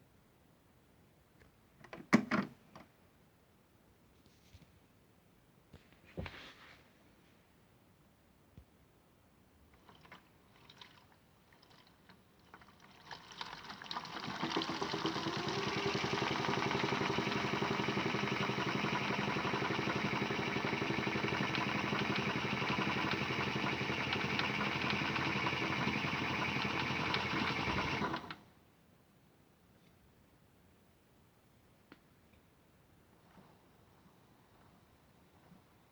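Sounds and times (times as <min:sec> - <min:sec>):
small electric motor whining: 0:14.5 - 0:28.4.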